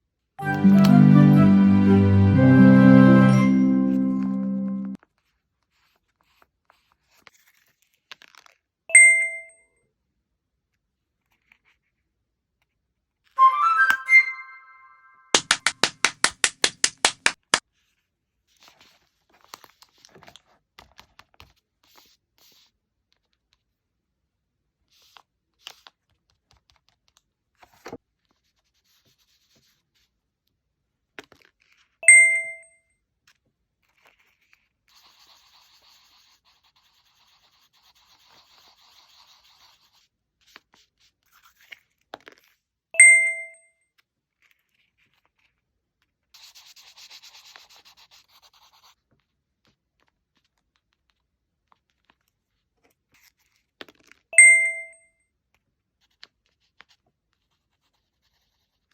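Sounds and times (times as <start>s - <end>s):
bright chime ding: 8.9s - 9.5s, 13.4s - 15.3s, 32.0s - 32.6s, 43.0s - 43.6s, 54.4s - 55.0s.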